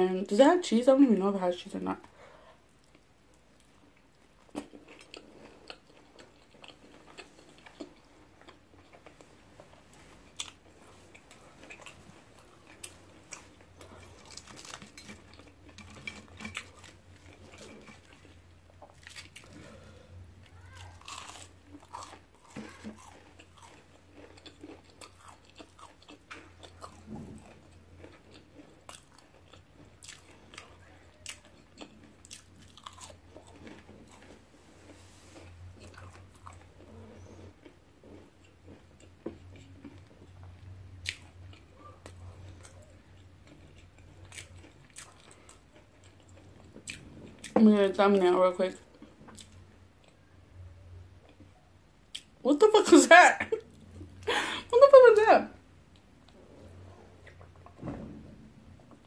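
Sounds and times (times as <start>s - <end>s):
faint low hum: 0.0s - 59.0s
chewing food: 2.0s - 52.4s, 55.8s - 57.8s
crunching onion rings: 2.8s - 47.6s.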